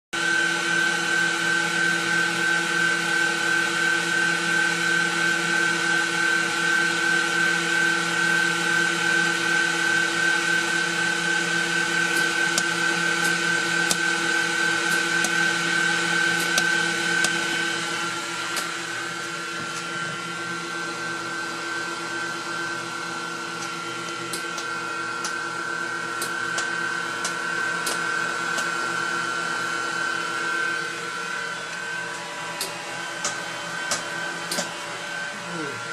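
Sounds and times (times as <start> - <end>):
welding machine whining hum: 0.2 - 35.9.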